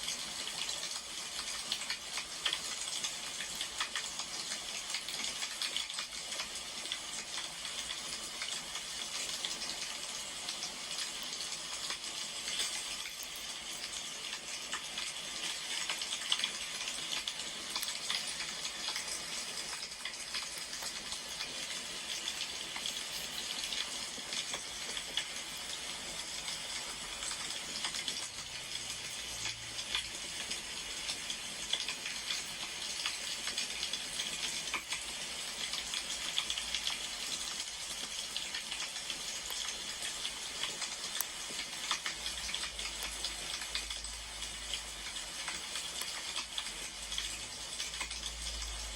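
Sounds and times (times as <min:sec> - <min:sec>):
firewood burning with crackles: 0:01.2 - 0:48.2.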